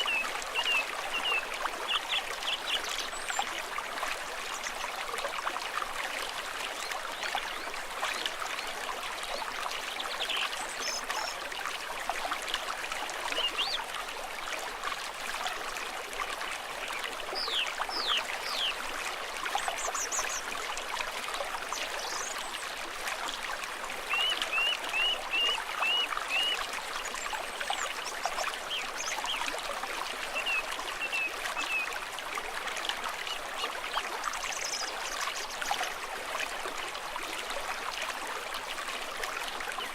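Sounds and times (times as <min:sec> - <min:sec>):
stream trickling: 0:00.0 - 0:39.9.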